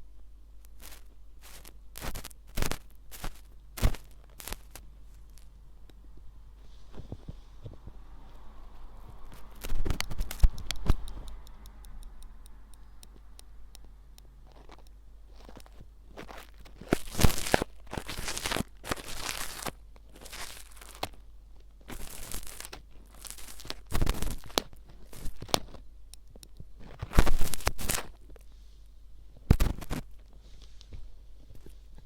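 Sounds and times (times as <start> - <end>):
ear pick scraping in ear: 0.8 - 5.6, 8.8 - 13.4.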